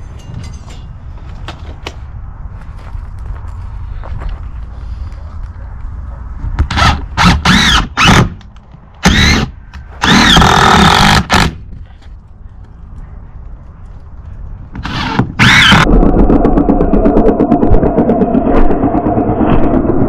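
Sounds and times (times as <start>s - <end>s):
power drill driving screws: 6.7s - 8.3s, 9.0s - 11.5s, 14.8s - 15.8s.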